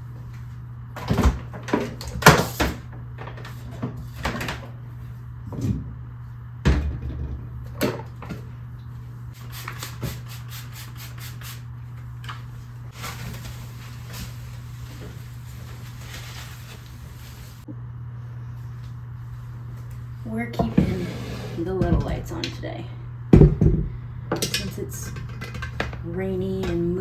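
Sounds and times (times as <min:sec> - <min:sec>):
cupboard doors opening and closing: 0:20.6 - 0:22.4
objects knocked and set down: 0:23.4 - 0:26.0.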